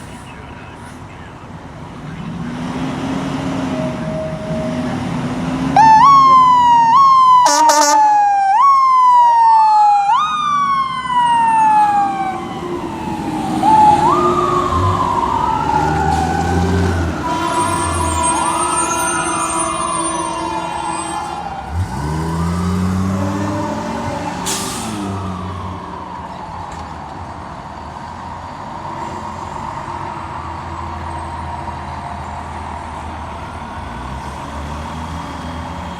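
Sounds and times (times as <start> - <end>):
heavy truck engine pulling away: 0.0 - 35.9
slow rising and falling siren: 3.5 - 27.6
electronic siren sweeping: 3.7 - 26.1
horn blast: 7.4 - 8.2.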